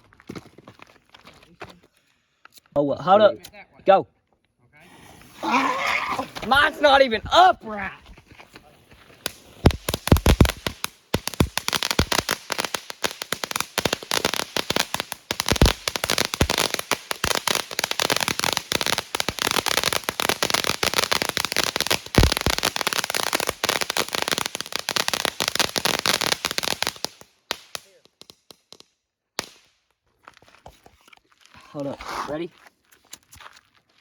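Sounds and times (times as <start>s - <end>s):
fireworks crackling: 4.9s - 7.5s, 8.8s - 29.8s
loud firework bangs: 9.3s - 27.9s.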